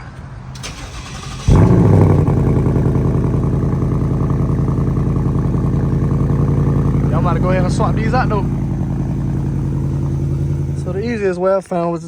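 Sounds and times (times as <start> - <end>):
car engine starting and idling: 0.0 - 11.7.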